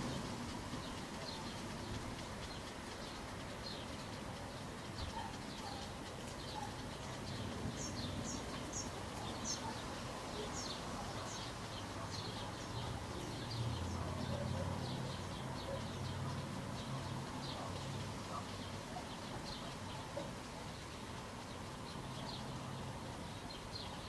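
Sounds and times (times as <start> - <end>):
small birds chirping: 0.0 - 24.0
steady outdoor hiss: 0.0 - 24.0.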